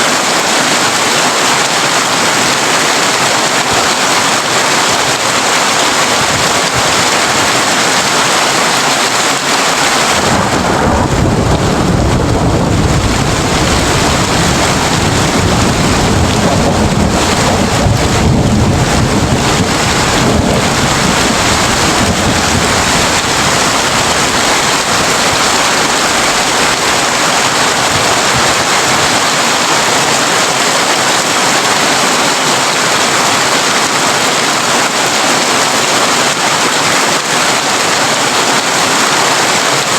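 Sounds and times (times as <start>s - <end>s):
rain on a tin roof: 0.0s - 39.9s
thunder rumble: 10.0s - 29.2s.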